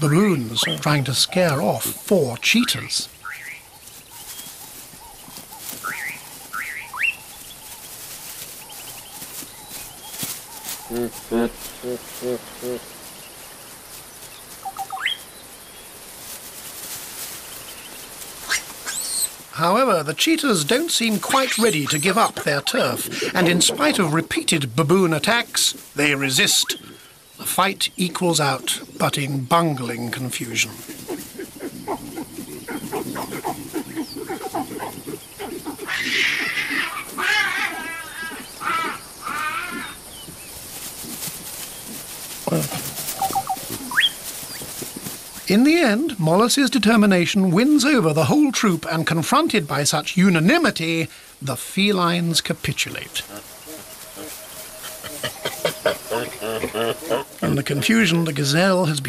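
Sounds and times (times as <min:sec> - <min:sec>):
open-air ambience: 0:00.0 - 0:59.0
chirps: 0:14.6 - 0:15.6, 0:42.5 - 0:44.7
baboon screams: 0:31.1 - 0:40.0, 0:53.3 - 0:57.6
low grunting and growling: 0:55.0 - 0:57.8.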